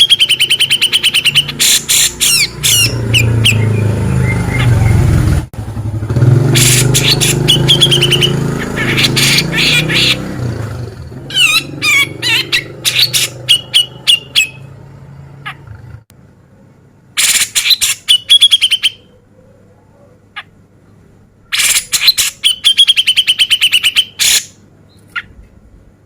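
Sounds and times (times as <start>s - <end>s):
bulbul calling: 0.0s - 5.3s, 6.5s - 10.4s, 11.1s - 14.8s, 17.2s - 19.2s, 21.5s - 25.4s.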